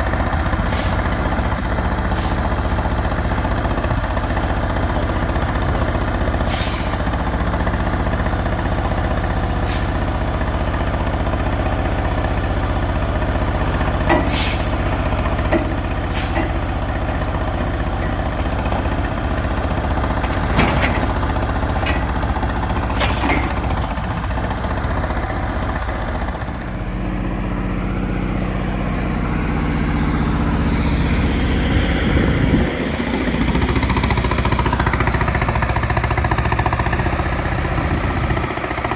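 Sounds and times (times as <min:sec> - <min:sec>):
diesel truck engine running: 0:00.0 - 0:38.9
air hissing from truck: 0:00.5 - 0:03.0, 0:06.3 - 0:07.4, 0:09.5 - 0:10.3, 0:13.5 - 0:25.1.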